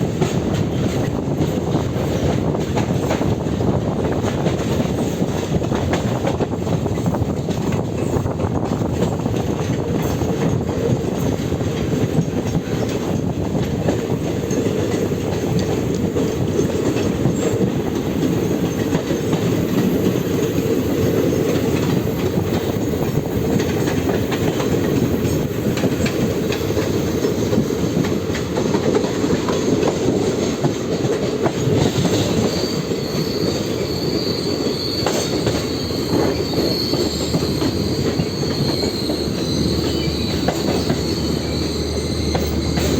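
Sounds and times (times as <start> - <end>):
train wheels rumbling on track: 0.0 - 42.9
high wheel squeal: 31.8 - 42.9.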